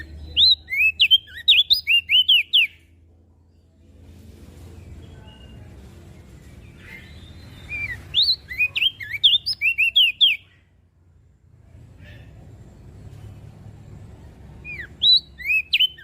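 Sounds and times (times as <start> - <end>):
bird singing sliding notes: 4.6 - 10.5, 14.6 - 16.0.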